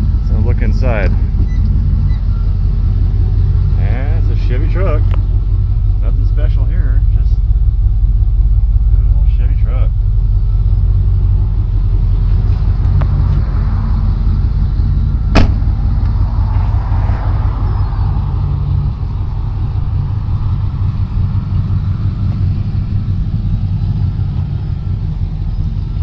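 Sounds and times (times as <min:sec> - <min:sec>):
pickup engine idling: 0:00.0 - 0:26.0.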